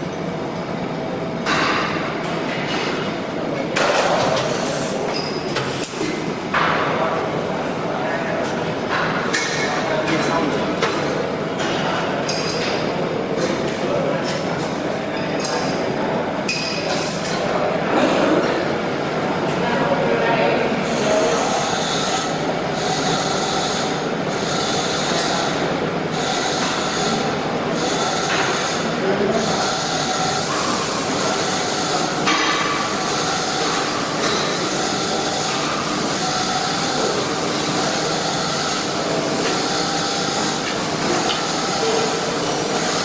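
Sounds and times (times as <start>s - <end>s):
arc welding hiss and crackle: 20.9s - 43.0s.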